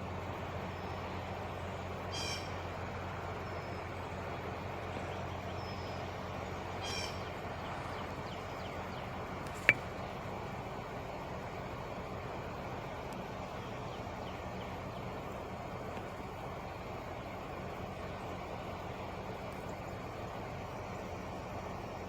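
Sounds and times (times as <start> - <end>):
steady low hum: 0.0 - 22.0
crow cawing: 2.1 - 2.6, 6.8 - 7.3.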